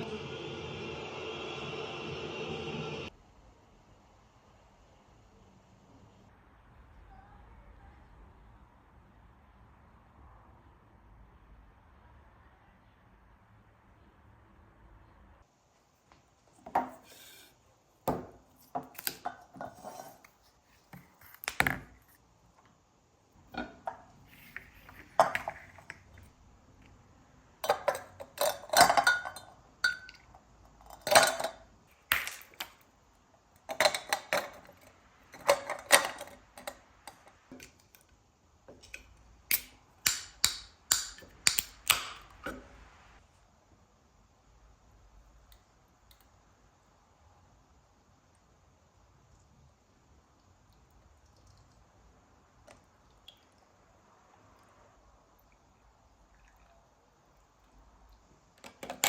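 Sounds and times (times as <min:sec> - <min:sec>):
dishes and utensils clinking: 0:27.6 - 0:30.2, 0:30.8 - 0:31.6.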